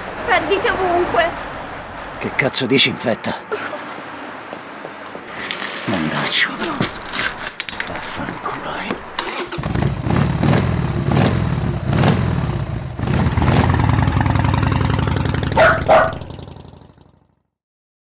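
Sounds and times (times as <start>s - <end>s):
motorcycle engine starting and revving: 9.1s - 17.5s.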